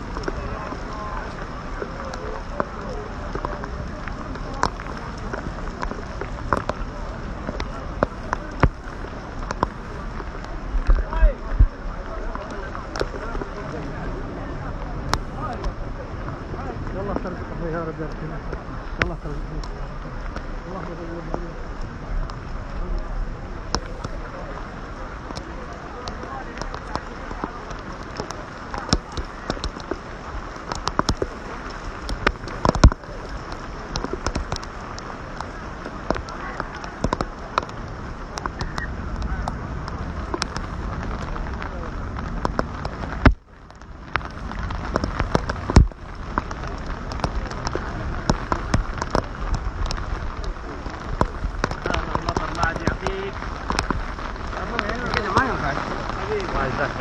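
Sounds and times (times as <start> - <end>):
indistinct crowd voices: 0.0 - 57.0
raindrops tapping close by: 0.0 - 57.0
steady rain: 0.0 - 57.0
sharp clicks and knocks: 30.6 - 35.5, 42.4 - 54.4.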